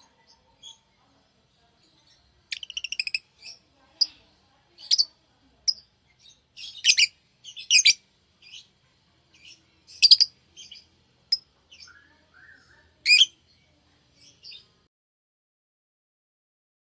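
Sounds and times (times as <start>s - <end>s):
lovebirds chirping and squawking: 1.8s - 8.7s, 9.3s - 13.4s, 14.2s - 14.7s.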